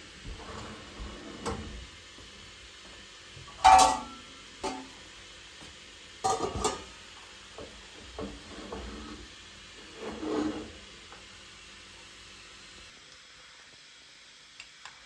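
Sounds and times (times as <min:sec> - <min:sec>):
utensils and dishes clinking: 0:03.5 - 0:05.0, 0:06.2 - 0:06.9
scraping in a bowl: 0:08.2 - 0:10.9.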